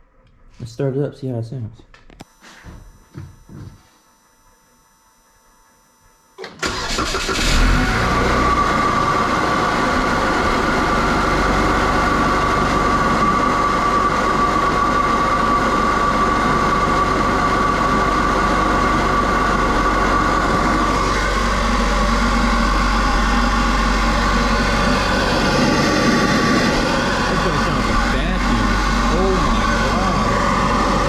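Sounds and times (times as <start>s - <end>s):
intake whine: 6.0s - 31.0s
car engine starting and idling: 6.4s - 31.0s.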